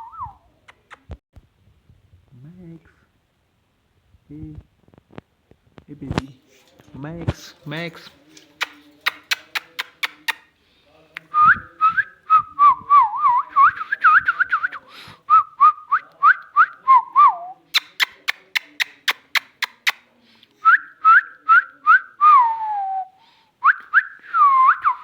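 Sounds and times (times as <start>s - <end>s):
sharp clicks: 7.3s - 10.5s.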